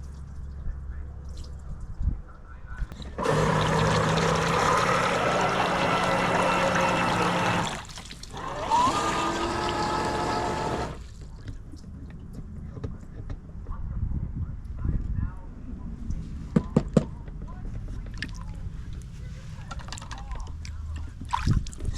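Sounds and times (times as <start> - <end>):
electric motor whining: 3.0 - 11.0
wheels splashing water: 3.0 - 12.0.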